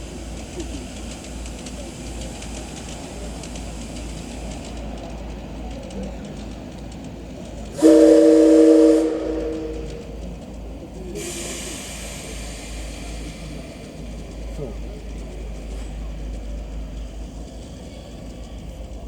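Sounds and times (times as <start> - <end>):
escaping steam hiss: 0.0 - 4.8, 11.1 - 15.7
steam locomotive whistle: 7.8 - 10.2.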